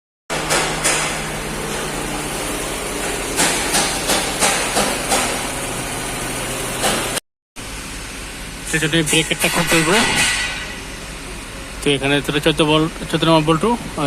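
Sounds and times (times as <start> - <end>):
sharp knocks: 0.3 - 1.9, 3.0 - 5.4
machine hum: 0.3 - 14.0.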